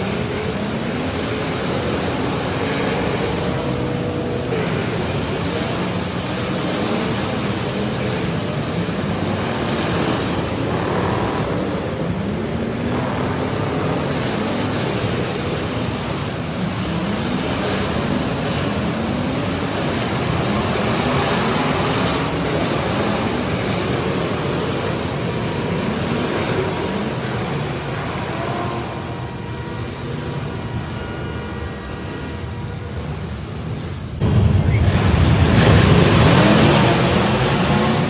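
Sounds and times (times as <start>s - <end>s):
car engines revving: 0.0s - 38.0s
loud din: 34.2s - 38.0s.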